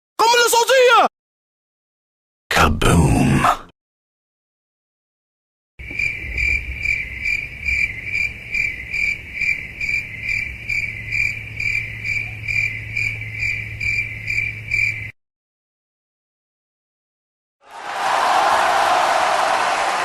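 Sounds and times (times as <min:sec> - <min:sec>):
crickets chirping: 0:05.8 - 0:15.2.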